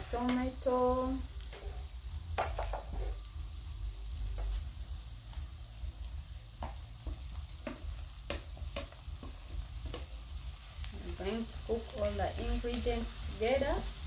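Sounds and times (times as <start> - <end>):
vegetables sizzling in oil: 0.0 - 14.0
taps and ticks in pan: 6.6 - 10.2.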